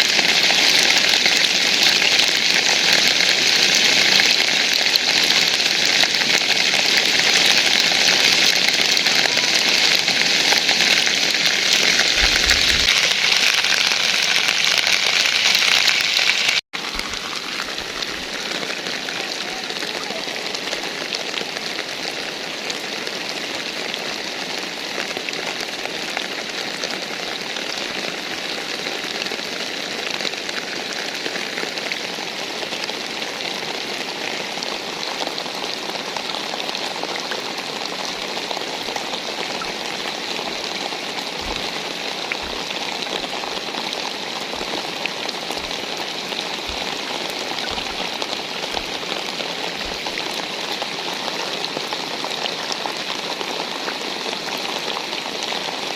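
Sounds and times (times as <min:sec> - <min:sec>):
steady rain falling: 0:00.0 - 0:55.9
dull low thumps: 0:12.2 - 0:13.0.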